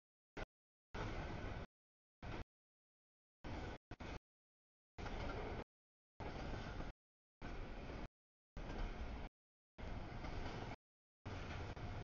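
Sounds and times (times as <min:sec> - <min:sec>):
train wheels rushing on rail: 0:07.5 - 0:12.0.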